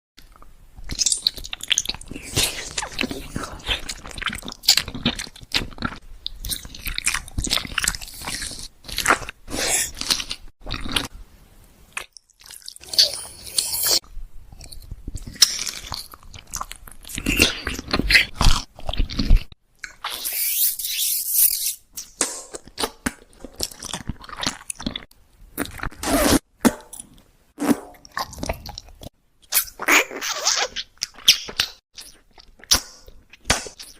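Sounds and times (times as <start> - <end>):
crunching and chewing food: 0.2 - 11.1, 11.9 - 20.1, 22.6 - 26.0, 30.6 - 33.9.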